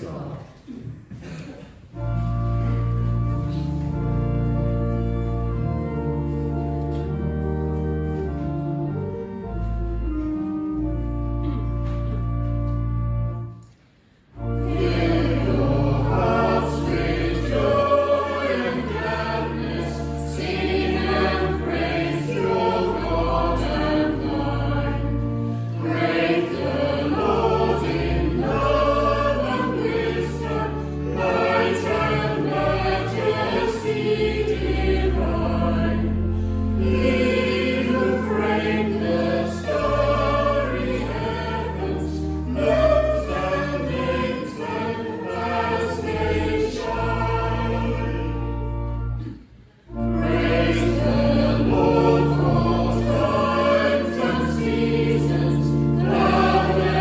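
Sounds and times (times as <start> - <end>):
pipe organ chords: 1.9 - 57.0
choir and congregation singing hymn: 14.3 - 57.0.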